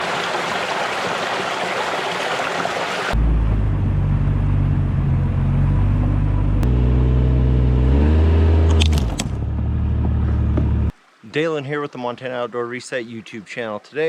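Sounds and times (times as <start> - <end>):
vehicle engine droning: 3.2 - 10.9.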